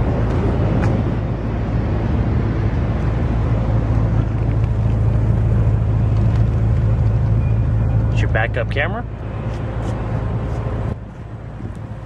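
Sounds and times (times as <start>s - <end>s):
car engine idling: 2.4s - 12.0s.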